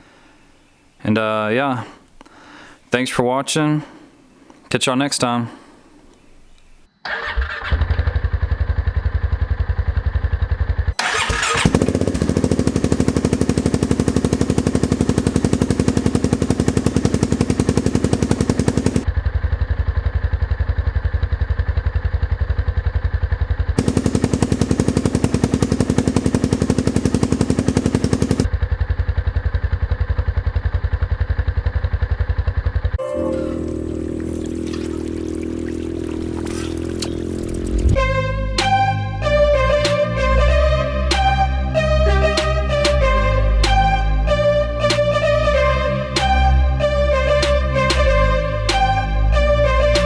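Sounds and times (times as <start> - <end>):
single-cylinder engine exhaust pulsing: 8.6 - 19.1, 20.3 - 33.0, 33.6 - 36.4.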